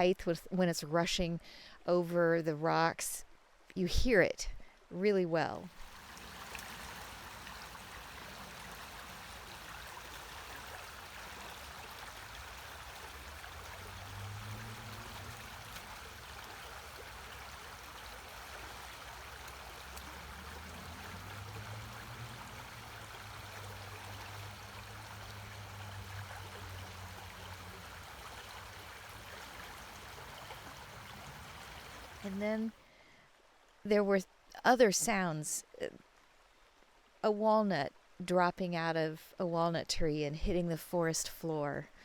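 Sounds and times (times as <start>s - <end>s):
creek water rushing over rocks: 5.7s - 33.0s.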